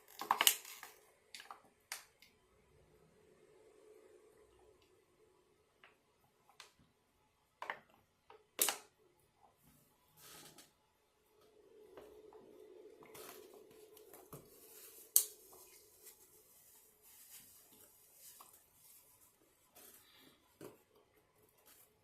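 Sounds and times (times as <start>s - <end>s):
low hum: 10.7s - 16.9s.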